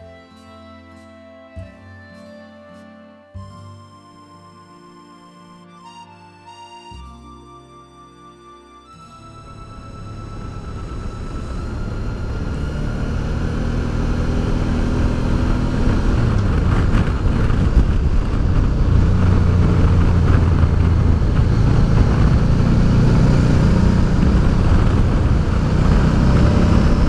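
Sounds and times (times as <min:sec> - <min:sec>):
wind and road noise: 0:09.2 - 0:27.0
motorcycle engine running: 0:09.8 - 0:27.0.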